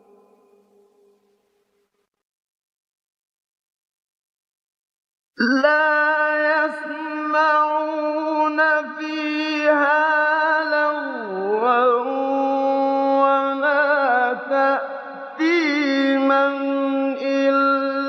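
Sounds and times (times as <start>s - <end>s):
man reciting melodically: 5.4s - 18.0s.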